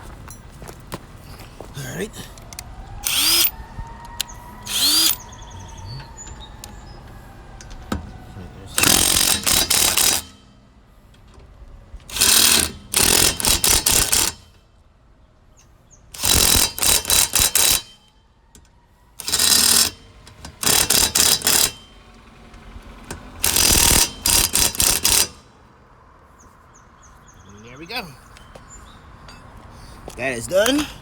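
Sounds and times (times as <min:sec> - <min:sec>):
impact wrench rattling: 0:03.0 - 0:03.5, 0:04.7 - 0:05.2, 0:08.8 - 0:10.5, 0:12.1 - 0:14.6, 0:16.2 - 0:18.0, 0:19.2 - 0:21.9, 0:23.4 - 0:25.5.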